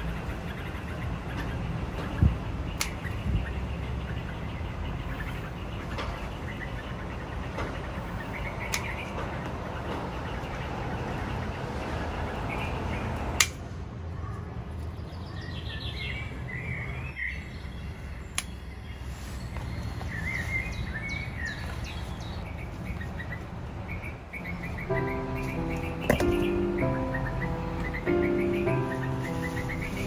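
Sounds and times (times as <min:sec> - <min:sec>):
small birds chirping: 0:00.0 - 0:13.6, 0:14.2 - 0:30.0
sharp click: 0:13.4 - 0:13.6
rushing noise: 0:23.5 - 0:30.0
music with held notes: 0:24.8 - 0:30.0.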